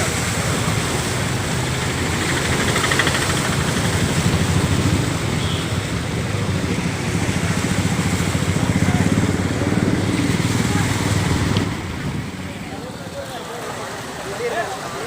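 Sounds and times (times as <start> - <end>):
engine idling: 1.6 - 5.6.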